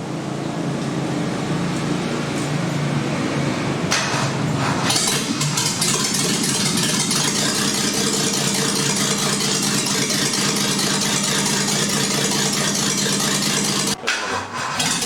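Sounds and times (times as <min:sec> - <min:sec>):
engine idling: 0:03.7 - 0:15.0.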